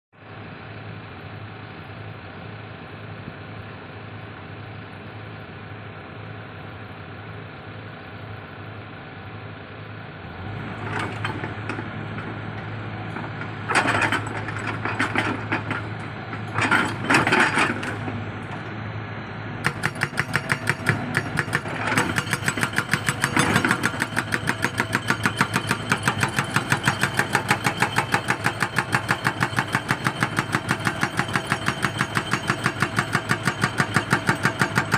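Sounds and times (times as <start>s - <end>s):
excavator diesel engine running: 0.3s - 34.9s
hydraulic breaker hammering: 19.6s - 34.9s.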